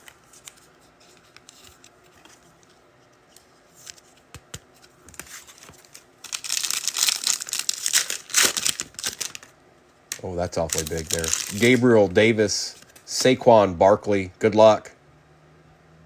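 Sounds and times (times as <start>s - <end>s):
trading cards handled: 0.0s - 9.5s, 10.1s - 13.1s
wrapper torn open crinkling: 5.5s - 9.5s, 10.1s - 11.9s.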